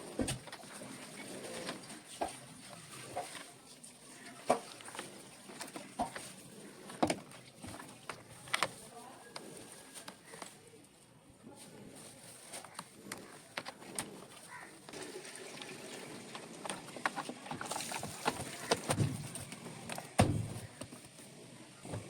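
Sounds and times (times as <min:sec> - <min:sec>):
heavy thump: 0:20.2 - 0:20.7.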